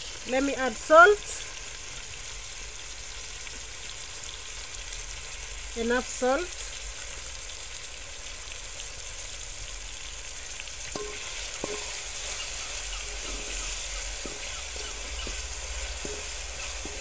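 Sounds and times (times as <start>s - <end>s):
vegetables sizzling in oil: 0.0s - 17.0s
wooden spoon knocking on pot: 10.9s - 17.0s.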